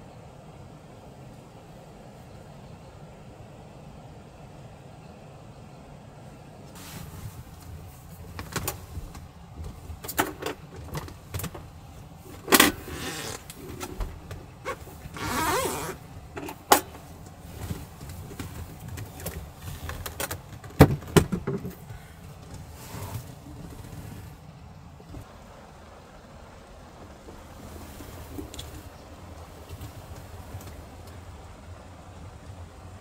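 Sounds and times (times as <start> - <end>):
rustling: 6.7 - 25.3.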